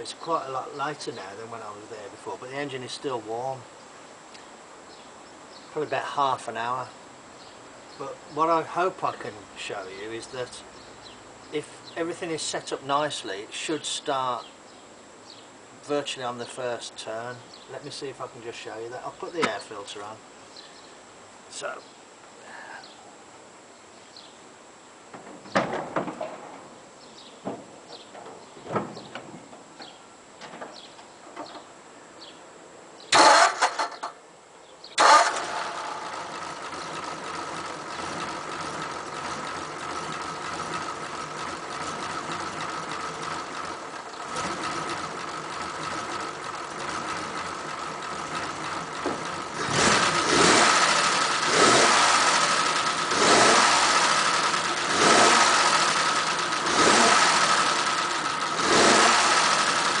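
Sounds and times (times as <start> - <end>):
engine revving: 33.1 - 34.0, 35.0 - 60.0
engine cranking and starting: 33.1 - 34.2, 35.0 - 60.0
engine idling: 35.0 - 60.0.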